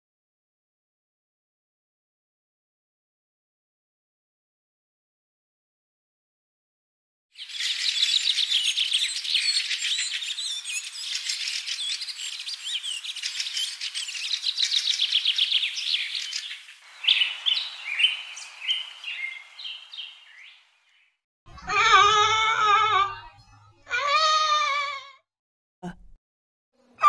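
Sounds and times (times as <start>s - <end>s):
songbirds chirping: 7.4s - 21.2s.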